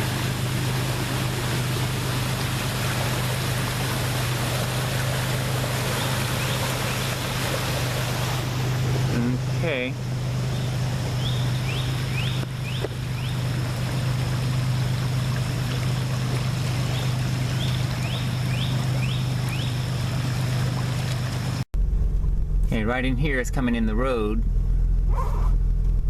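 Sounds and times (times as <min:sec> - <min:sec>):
water rushing through ditch: 0:00.0 - 0:21.6
low hum: 0:00.0 - 0:26.0.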